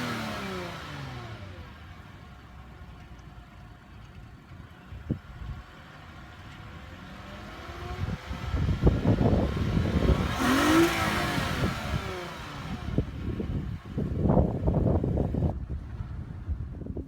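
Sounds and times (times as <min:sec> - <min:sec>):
exhaust rush: 0:00.0 - 0:03.0, 0:06.1 - 0:16.4
car engine accelerating: 0:00.0 - 0:16.4.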